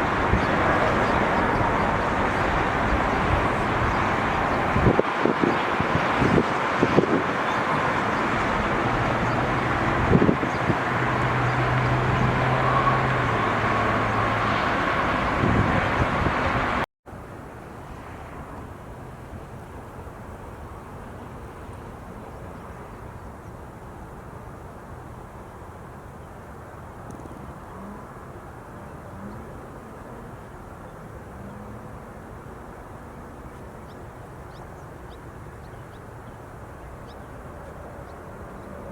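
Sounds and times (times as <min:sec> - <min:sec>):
jet engines rushing: 0:00.0 - 0:16.8
wind thumping on microphone: 0:00.0 - 0:16.8.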